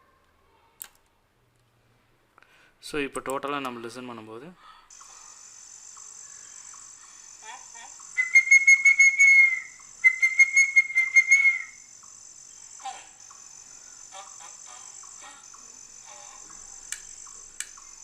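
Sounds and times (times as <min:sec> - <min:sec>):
faint bird chirps: 0:04.6 - 0:18.0
high insect chirring: 0:04.9 - 0:18.0
fast-pulsing bird trills: 0:05.0 - 0:18.0.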